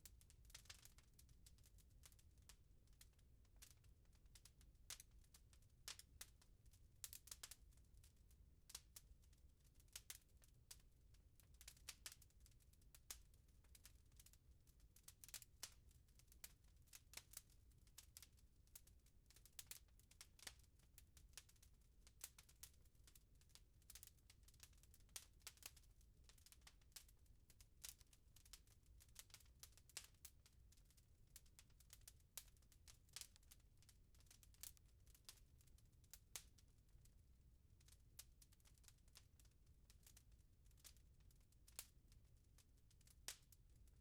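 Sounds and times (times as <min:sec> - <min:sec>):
wood fire crackling and popping: 0:00.1 - 0:01.0, 0:09.9 - 0:12.3, 0:12.9 - 0:14.3, 0:15.0 - 0:22.8, 0:23.4 - 0:27.1, 0:27.8 - 0:30.8, 0:31.4 - 0:33.6, 0:34.2 - 0:36.6, 0:41.7 - 0:41.9.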